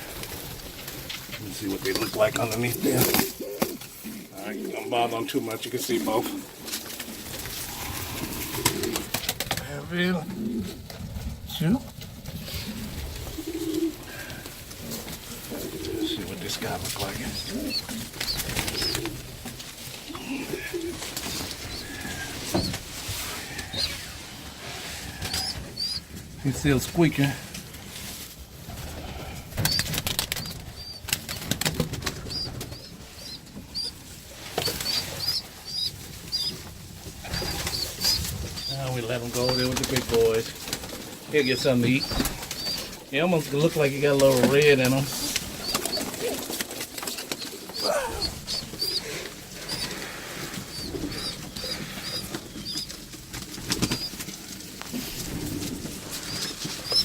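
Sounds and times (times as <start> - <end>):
pigeon wings flapping: 0.0 - 4.3, 5.8 - 9.7, 10.3 - 57.0
young pigeon squeaking: 15.5 - 24.3, 24.9 - 26.7, 29.5 - 57.0.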